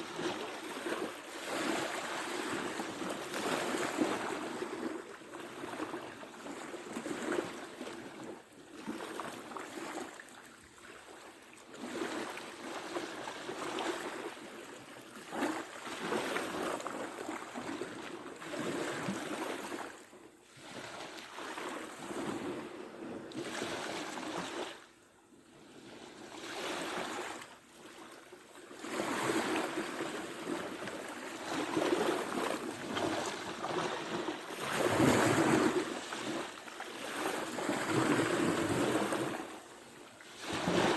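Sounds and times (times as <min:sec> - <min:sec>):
ocean waves breaking: 0:00.0 - 0:05.9, 0:28.8 - 0:40.9.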